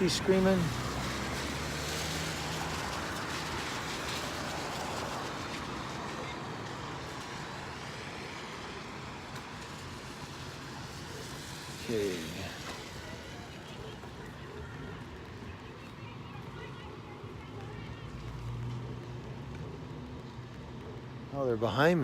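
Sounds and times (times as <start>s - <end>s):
vehicle passing on street: 0.0s - 22.0s.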